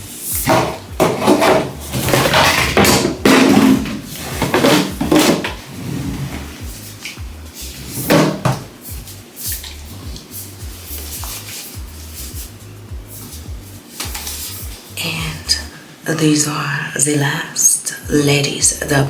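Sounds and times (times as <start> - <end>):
background music with bass beat: 0.0 - 15.7, 18.0 - 19.0
plastic bottles knocking and clattering: 0.4 - 5.7, 8.0 - 8.8.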